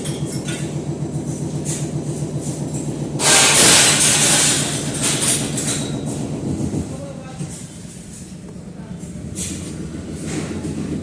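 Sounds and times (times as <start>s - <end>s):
machinery engine drone: 0.0s - 11.0s.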